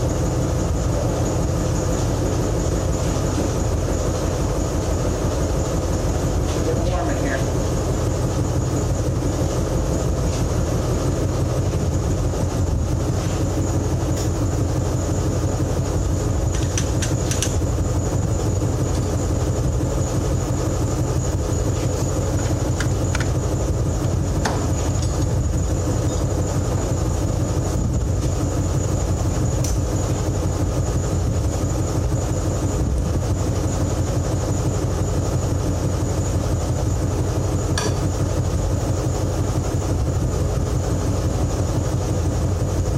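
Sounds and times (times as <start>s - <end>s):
engine drone: 0.0s - 42.9s
thin high whine: 0.0s - 42.9s.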